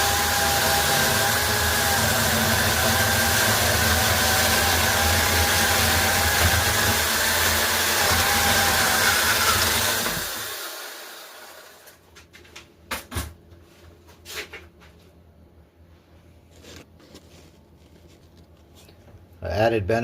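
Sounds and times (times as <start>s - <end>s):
electric chainsaw cutting wood: 0.0s - 11.9s.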